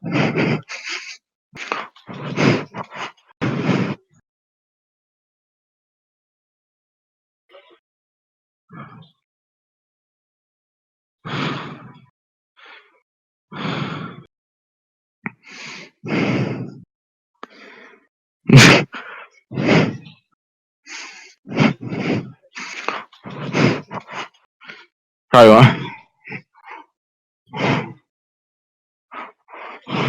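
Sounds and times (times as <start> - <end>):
person gasping heavily: 0.0 - 4.0, 20.9 - 26.9.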